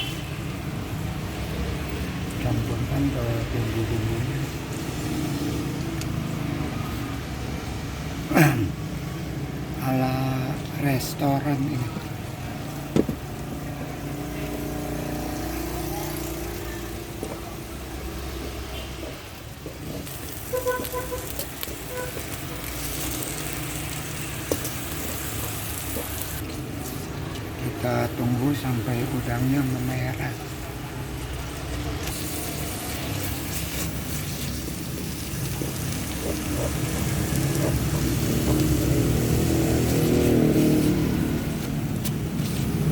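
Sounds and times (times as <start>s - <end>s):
shrimp sizzling in a pot: 8.8s - 42.9s.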